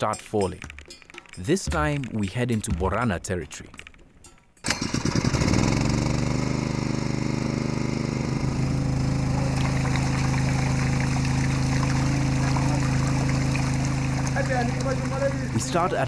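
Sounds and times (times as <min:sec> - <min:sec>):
engine running steadily: 0:04.7 - 0:16.0.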